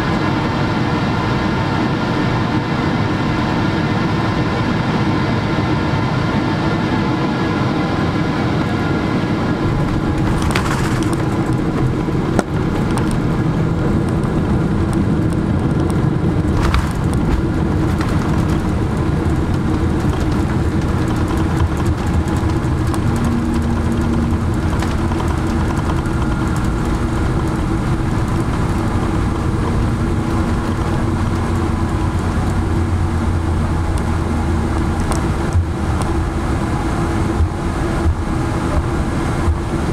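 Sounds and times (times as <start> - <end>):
airliner cabin rumble: 0.0 - 39.9
sharp rattles: 9.6 - 13.4, 16.4 - 32.1.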